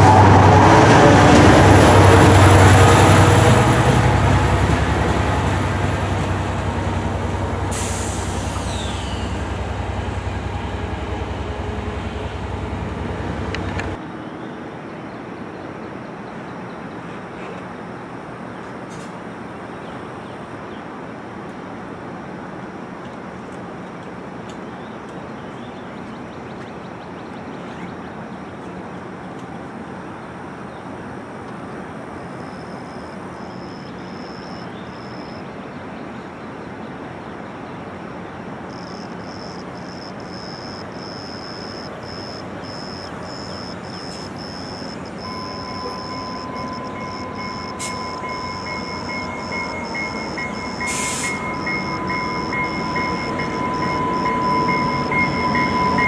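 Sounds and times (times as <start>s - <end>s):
train approaching: 0.0s - 56.0s
high whine: 40.3s - 56.0s.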